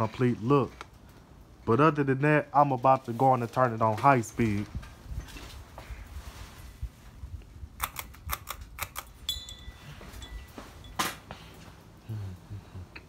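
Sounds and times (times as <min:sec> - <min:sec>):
ceiling fan whooshing: 0:03.0 - 0:07.8
chain jingling: 0:09.2 - 0:11.1.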